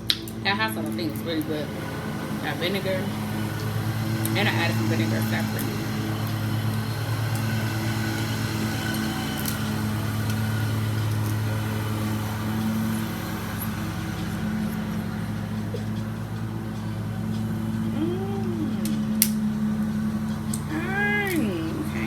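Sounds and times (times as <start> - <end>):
low mechanical drone: 0.0 - 22.0
rising and falling vocal sound: 17.9 - 19.1.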